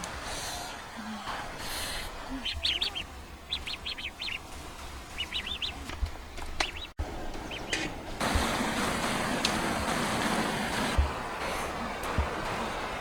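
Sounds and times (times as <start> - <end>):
small bird chirping: 2.3 - 7.8.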